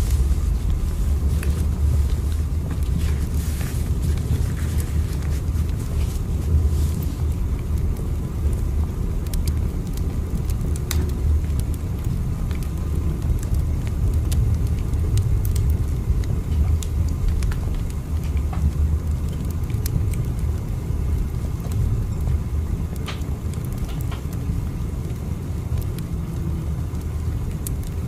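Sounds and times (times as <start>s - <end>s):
train rumbling: 0.0s - 8.8s.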